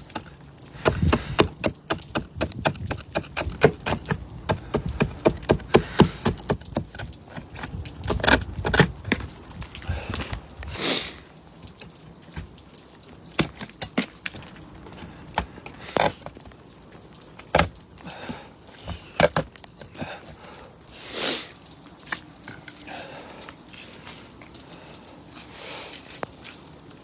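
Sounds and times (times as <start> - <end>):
metal awl chipping ice: 0.0 - 9.3, 13.4 - 14.5.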